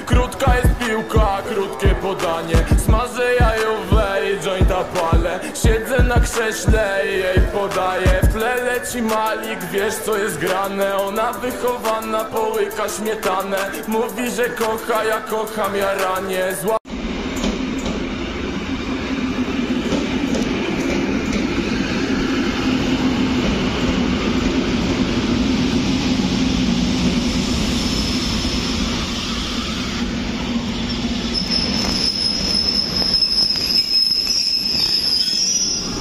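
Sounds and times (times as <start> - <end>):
electric train rolling past: 0.0 - 36.0
high-pitched wheel and brake squeal: 30.8 - 36.0.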